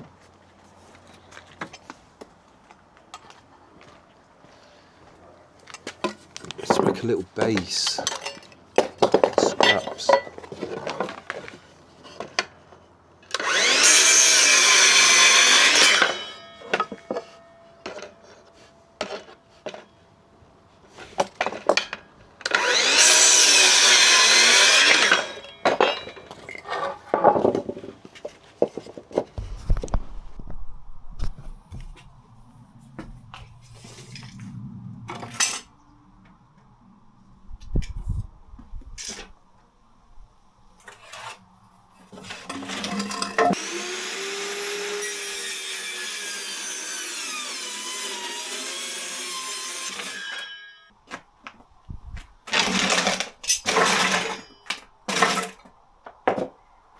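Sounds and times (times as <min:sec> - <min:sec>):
power saw cutting wood: 0:13.2 - 0:17.4, 0:22.4 - 0:26.2, 0:42.4 - 0:50.8, 0:52.5 - 0:54.4.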